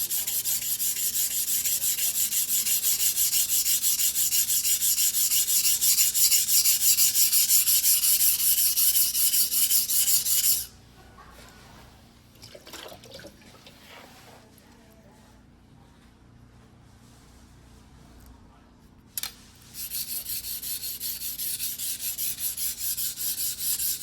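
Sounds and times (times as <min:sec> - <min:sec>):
knife stroked on a whetstone: 0:00.0 - 0:10.7, 0:19.6 - 0:24.0.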